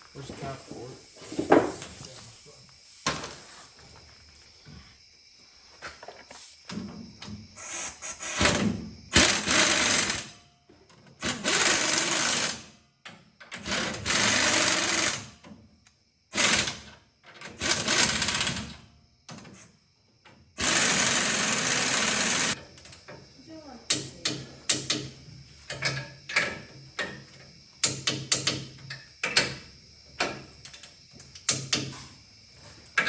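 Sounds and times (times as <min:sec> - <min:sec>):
impact wrench bursts: 0:07.6 - 0:10.3, 0:11.2 - 0:12.7, 0:13.6 - 0:15.3, 0:20.6 - 0:22.6.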